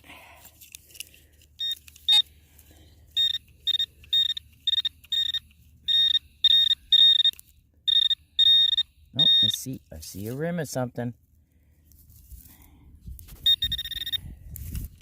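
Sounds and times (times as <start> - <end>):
metal detector beeping: 1.6 - 10.4, 13.4 - 14.4.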